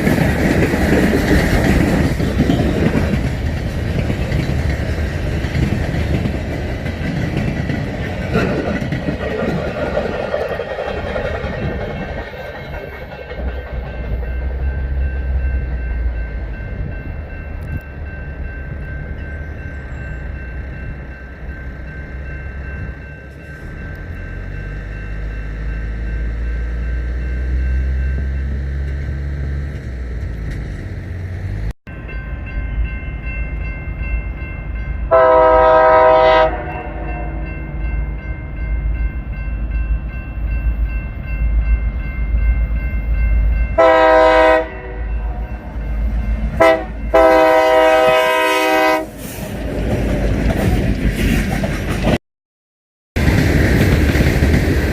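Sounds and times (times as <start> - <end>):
freight train rumbling past: 0.0 - 52.2, 53.2 - 54.9
locomotive horn blast: 35.1 - 37.6, 43.8 - 45.5, 46.6 - 49.2.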